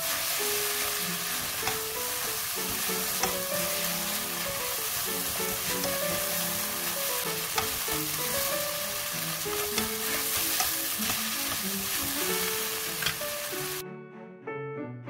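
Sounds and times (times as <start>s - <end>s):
noodles sizzling in a wok: 0.0s - 13.8s
utensils clicking against pan: 1.2s - 4.2s, 4.8s - 13.3s.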